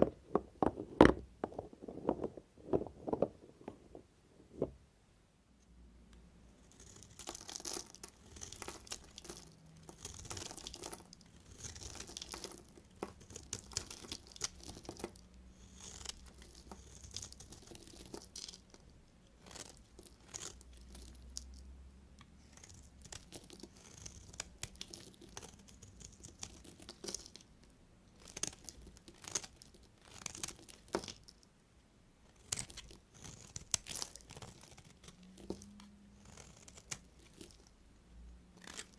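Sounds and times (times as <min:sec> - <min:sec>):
knife cutting soap: 0:06.6 - 0:18.6, 0:22.2 - 0:27.4, 0:32.2 - 0:37.6, 0:38.6 - 0:38.9.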